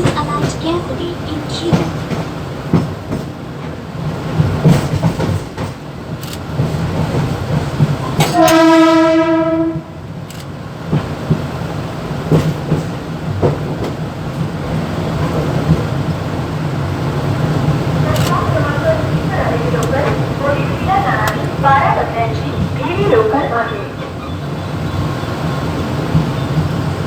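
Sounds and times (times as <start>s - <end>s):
electric train rattling and humming: 0.0s - 27.0s
train horn: 8.2s - 10.0s.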